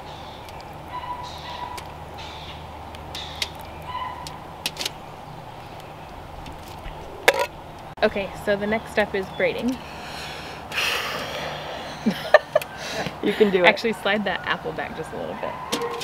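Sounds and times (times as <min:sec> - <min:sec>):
bird calling: 0:00.0 - 0:07.9.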